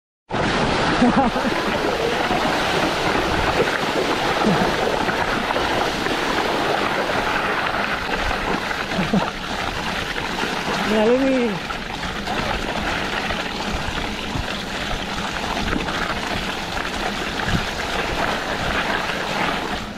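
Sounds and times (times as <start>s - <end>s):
bike tyres splashing through mud: 0.4s - 19.9s.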